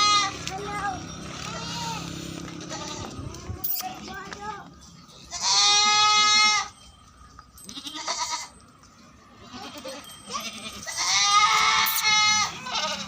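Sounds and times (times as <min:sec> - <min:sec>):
goats bleating: 0:00.0 - 0:03.5, 0:05.3 - 0:06.8, 0:07.6 - 0:08.6, 0:09.3 - 0:13.0.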